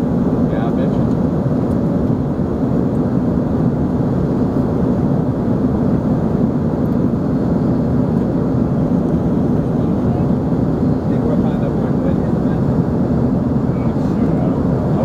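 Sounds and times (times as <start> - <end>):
jet cabin roar: 0.0 - 15.0.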